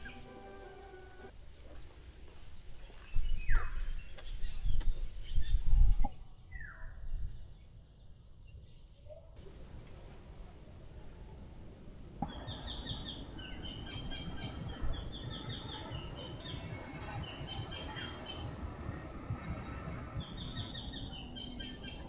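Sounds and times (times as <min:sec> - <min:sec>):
falling whistled bird calls: 0:00.0 - 0:01.4
small birds chirping: 0:00.0 - 0:22.0
loud low rumble: 0:11.2 - 0:22.0.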